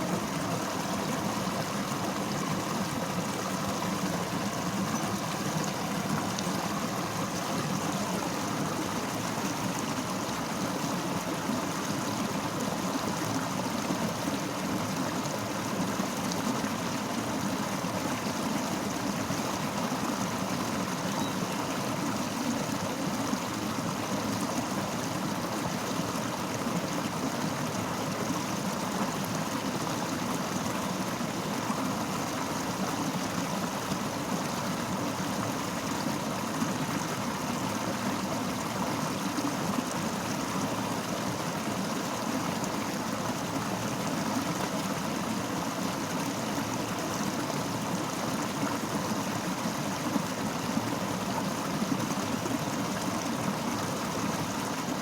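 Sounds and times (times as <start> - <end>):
river water rushing over rocks: 0.0 - 55.0.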